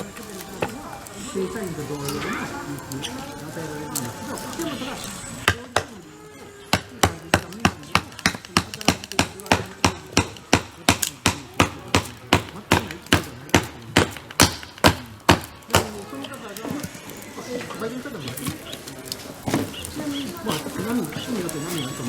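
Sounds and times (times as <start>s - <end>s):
wood being chopped: 5.4s - 6.0s, 6.7s - 16.9s, 19.5s - 20.0s.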